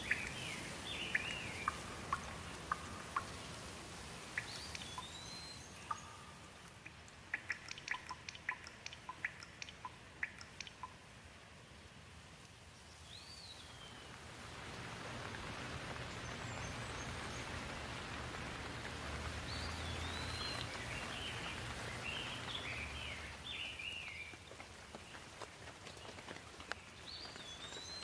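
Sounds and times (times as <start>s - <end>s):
bird chirping: 0.0s - 3.6s, 4.3s - 11.0s, 12.8s - 14.2s, 15.6s - 18.4s, 19.0s - 25.2s, 26.7s - 28.0s
rain hissing: 0.0s - 28.0s.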